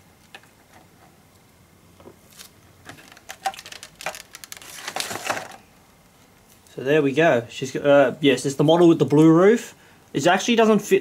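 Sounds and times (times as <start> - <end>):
plastic packaging crackling: 2.3 - 5.7.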